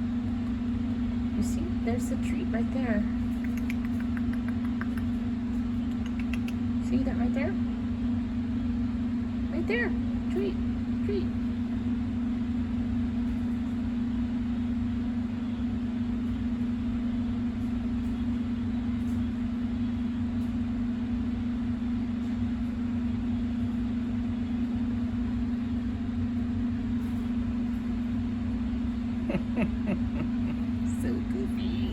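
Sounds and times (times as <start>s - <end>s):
low machine hum: 0.0s - 31.9s.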